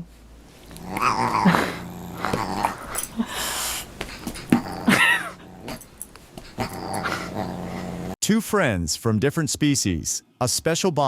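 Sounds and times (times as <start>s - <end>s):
animals growling: 0.6s - 3.4s, 4.2s - 8.2s
animal hissing: 6.4s - 8.2s.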